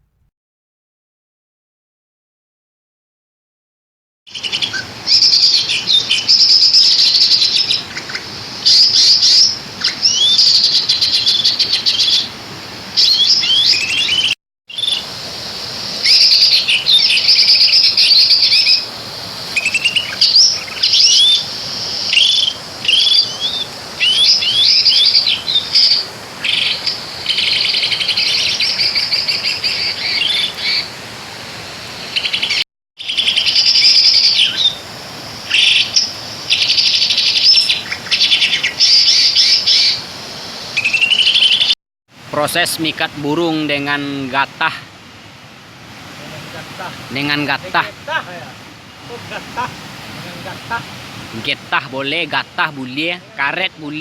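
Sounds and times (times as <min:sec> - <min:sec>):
bird song chirping and trills: 0:04.3 - 0:12.3, 0:13.0 - 0:15.1, 0:16.0 - 0:18.9, 0:19.5 - 0:30.9, 0:32.0 - 0:34.9, 0:35.5 - 0:40.0, 0:40.8 - 0:41.8.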